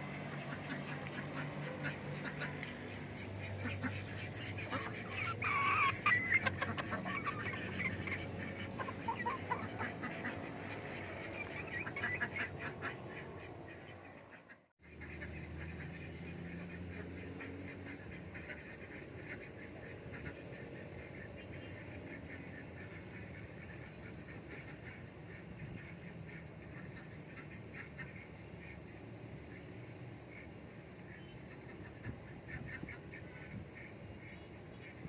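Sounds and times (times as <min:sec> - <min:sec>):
chickens clucking: 0:00.0 - 0:14.6
ducks quacking: 0:00.0 - 0:28.8, 0:30.3 - 0:35.0.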